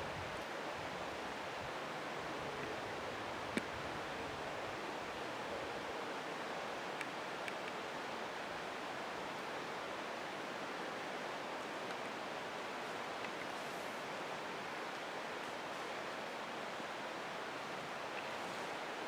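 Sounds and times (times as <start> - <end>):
rushing water hiss: 0.0 - 19.0
faint ticks: 7.0 - 7.8, 13.1 - 13.8.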